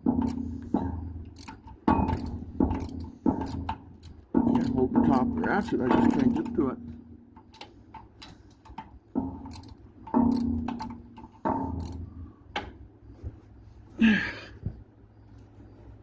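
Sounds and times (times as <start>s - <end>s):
socket ratchet clicking: 0.2s - 4.8s, 7.4s - 12.0s.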